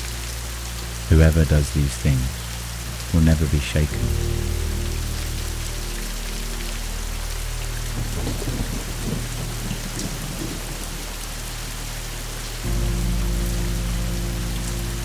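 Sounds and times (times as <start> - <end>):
deep steady tone: 0.0 - 15.0
steady rain falling: 0.0 - 15.0
thunder rumbling: 3.2 - 15.0.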